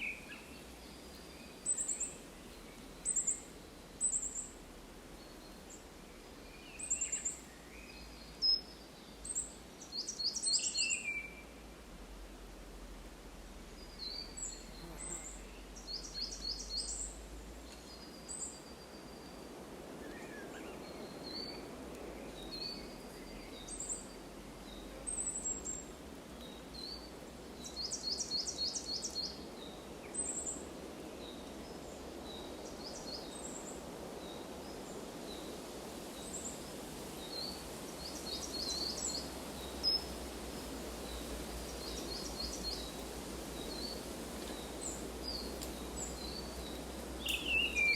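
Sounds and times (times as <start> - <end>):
low outdoor hiss: 0.0 - 47.9
birds chirping and trilling: 46.0 - 47.9.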